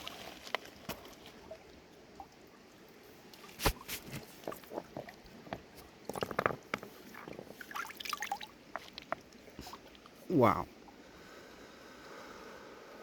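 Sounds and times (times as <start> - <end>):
stones knocking together: 3.6 - 7.6.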